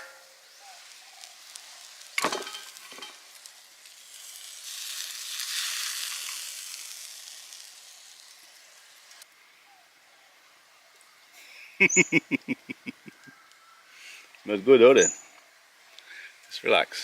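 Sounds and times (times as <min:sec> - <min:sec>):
sharp metallic clank: 0:00.0 - 0:00.3
steak sizzling over fire: 0:00.0 - 0:09.4.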